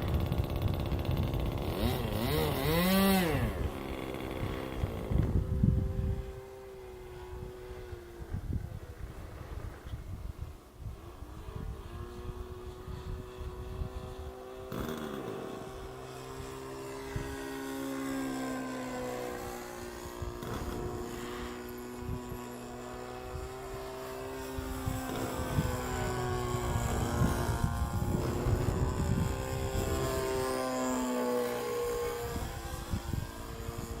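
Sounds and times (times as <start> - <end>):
model airplane engine droning: 0.0 - 34.0.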